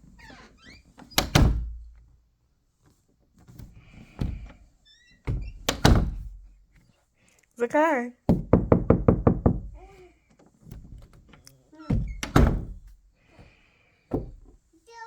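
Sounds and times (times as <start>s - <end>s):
door banging against frame: 1.2s - 1.9s, 5.3s - 6.4s, 8.3s - 9.8s, 11.9s - 12.9s.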